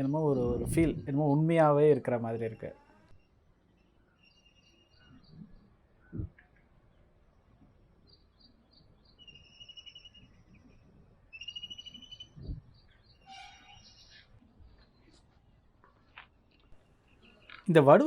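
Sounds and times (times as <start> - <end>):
birds chirping and trilling: 2.4 - 7.2, 8.0 - 15.2.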